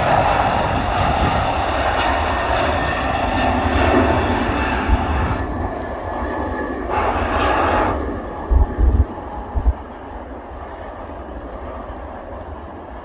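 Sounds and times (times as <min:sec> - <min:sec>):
jet engines rushing with whine: 0:00.0 - 0:13.0.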